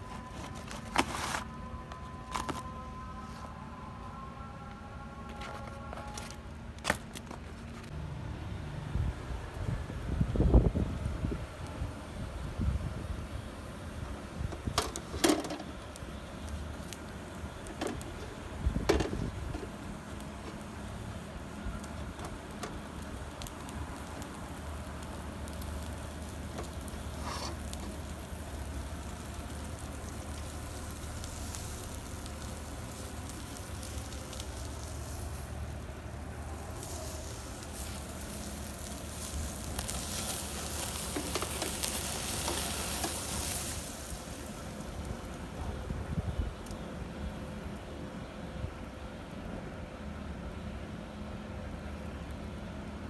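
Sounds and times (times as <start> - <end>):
meat sizzling over fire: 9.4 - 46.2.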